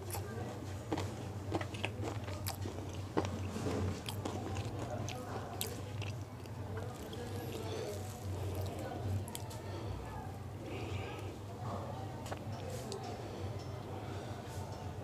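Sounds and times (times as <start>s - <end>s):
chewing and biting food: 0.0s - 9.6s
mouth clicks and crunches: 0.0s - 9.6s.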